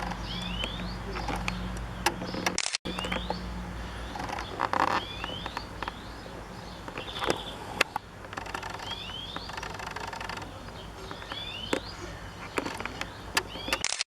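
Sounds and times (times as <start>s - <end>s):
sharp clicks: 0.0s - 3.4s, 6.8s - 14.0s
songbirds singing: 0.0s - 14.0s.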